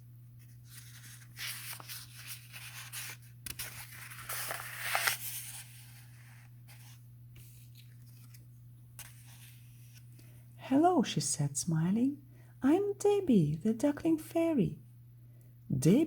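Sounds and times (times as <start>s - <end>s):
steady low hum: 0.0s - 16.0s
book pages rustling: 0.4s - 10.2s.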